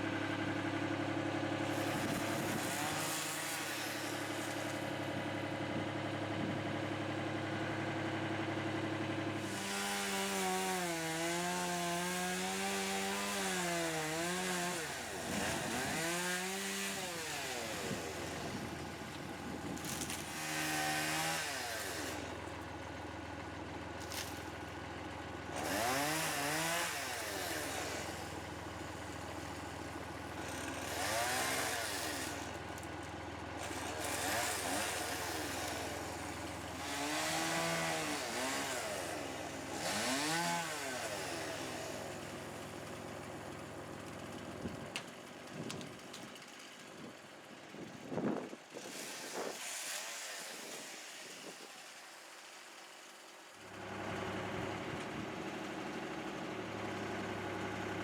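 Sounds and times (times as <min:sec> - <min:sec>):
chainsaw engine idling: 0:00.0 - 0:58.0
chainsaw revving and cutting wood: 0:00.0 - 0:58.0.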